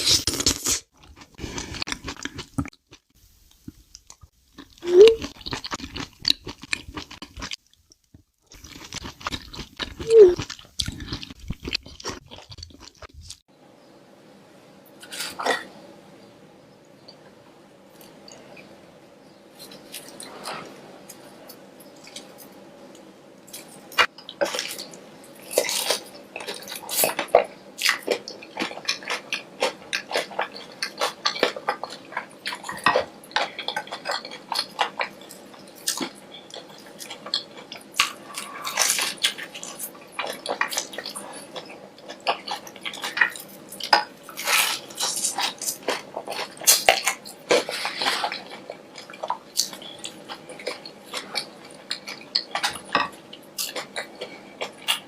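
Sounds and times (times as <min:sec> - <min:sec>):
crunchy bites and chewing: 0:04.6 - 0:07.6, 0:08.5 - 0:13.4, 0:23.5 - 0:55.0.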